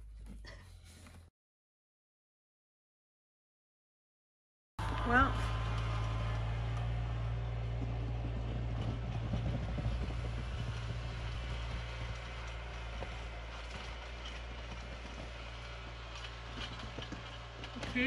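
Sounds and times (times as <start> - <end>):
vehicle engine humming: 4.8 - 18.0.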